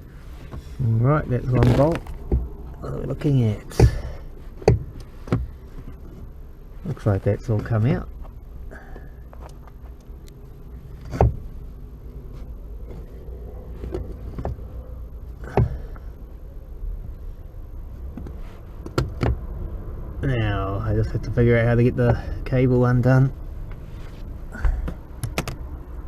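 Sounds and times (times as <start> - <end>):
steady low hum: 0.0 - 26.0
clutch pedal assembly clunks: 3.6 - 5.6, 24.6 - 25.6.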